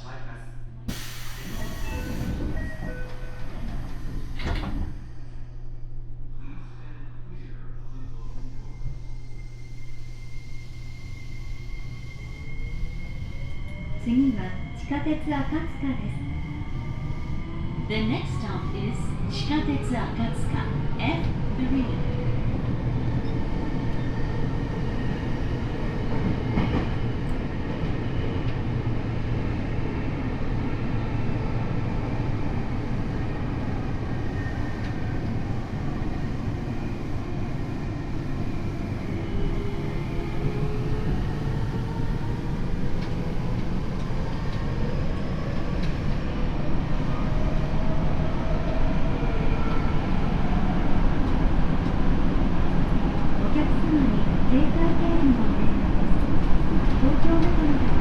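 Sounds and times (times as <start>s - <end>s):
subway car wheels rumbling: 0.0s - 58.0s.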